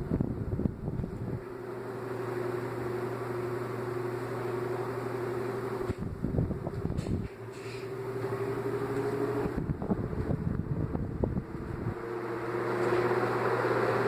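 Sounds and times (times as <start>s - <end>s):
low thumps and buffeting: 0.0s - 1.4s, 5.8s - 7.3s, 9.4s - 12.2s
electric fan humming: 0.0s - 14.0s.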